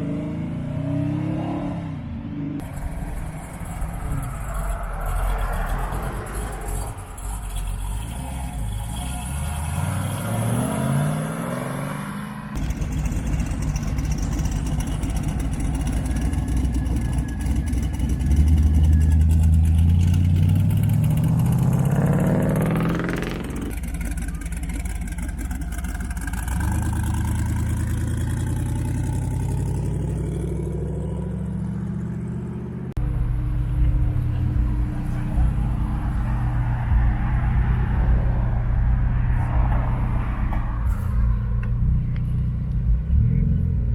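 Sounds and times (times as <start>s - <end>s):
car engines rumbling: 0.0s - 43.9s
car engine revving hard: 18.0s - 24.1s.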